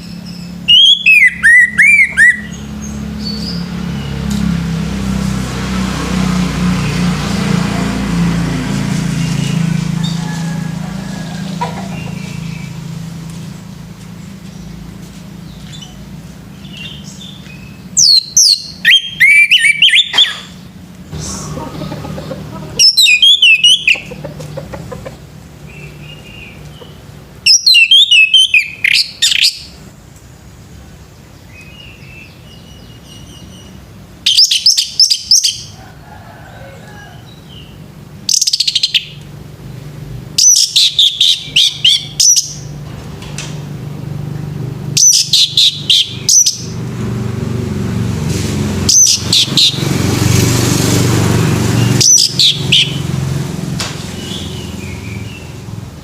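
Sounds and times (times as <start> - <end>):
thrush singing: 21.1 - 29.2.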